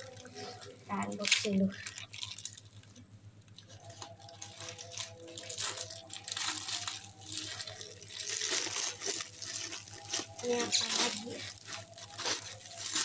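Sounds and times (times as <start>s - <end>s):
packaging crinkling and tearing: 0.0s - 13.0s.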